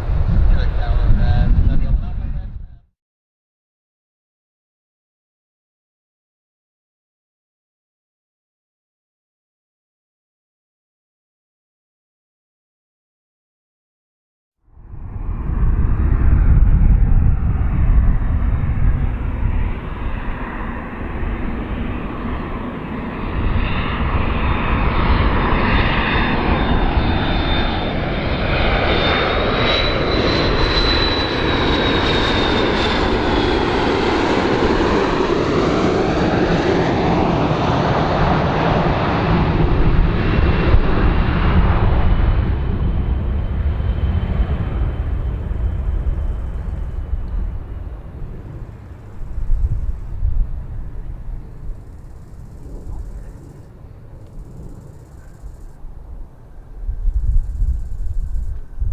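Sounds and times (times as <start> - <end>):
aircraft engines flying past: 0.0 - 2.8, 14.7 - 58.9.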